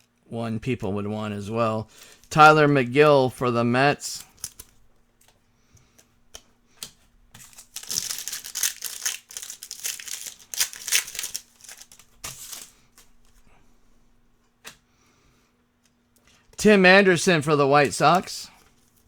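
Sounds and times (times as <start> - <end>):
cards clicking: 4.1 - 13.1
foil wrapper crinkling and tearing: 4.2 - 4.7, 7.4 - 13.4.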